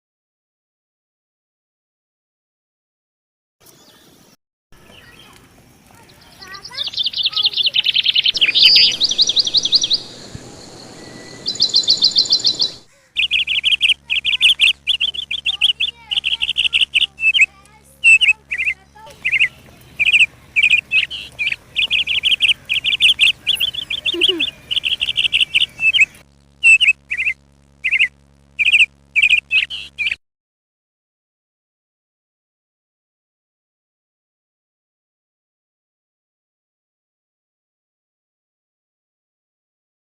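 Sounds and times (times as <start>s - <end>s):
songbirds chirping and trilling: 3.6s - 30.2s.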